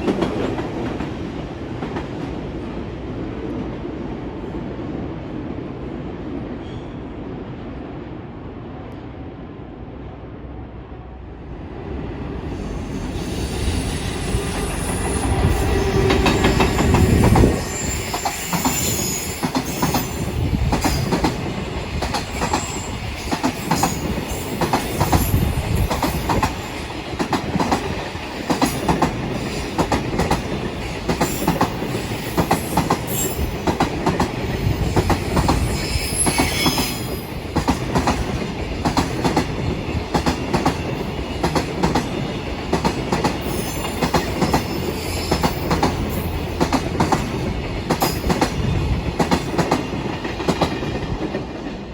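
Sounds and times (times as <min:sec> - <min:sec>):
train wheels clacking over rails: 0:00.0 - 0:02.4, 0:13.0 - 0:51.9
high wheel squeals: 0:12.6 - 0:20.3, 0:35.5 - 0:37.3, 0:43.4 - 0:46.4.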